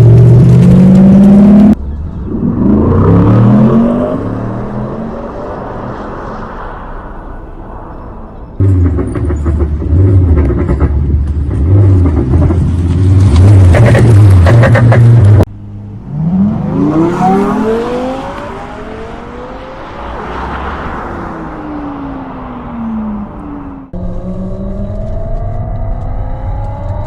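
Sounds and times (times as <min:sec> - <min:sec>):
engine note rising: 0:00.0 - 0:12.6, 0:13.3 - 0:27.0
simulated engine revving rumble: 0:00.0 - 0:20.6.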